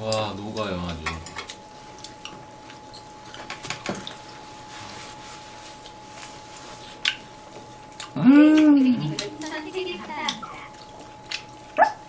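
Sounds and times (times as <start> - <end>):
soft chewing: 0.1 - 12.0
wet mouth clicks: 7.0 - 7.3, 8.0 - 9.4, 10.2 - 12.0.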